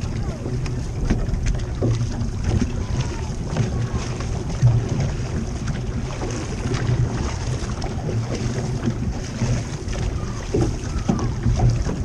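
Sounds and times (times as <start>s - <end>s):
paddles pulling through water: 0.0s - 12.0s
water rushing along hull: 0.0s - 12.0s
wind buffeting microphone: 0.0s - 12.0s.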